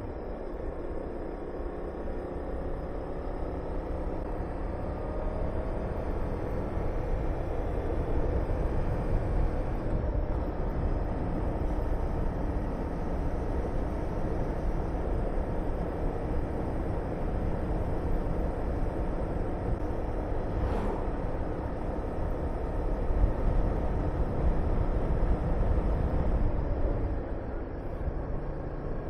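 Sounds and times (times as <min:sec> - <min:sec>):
wind rushing over microphone: 0:19.6 - 0:27.3.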